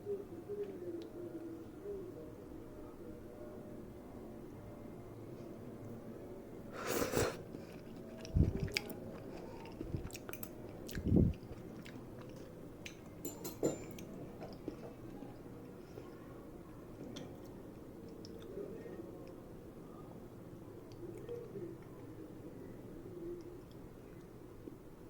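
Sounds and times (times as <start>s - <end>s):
person chewing noodles: 6.8s - 13.1s.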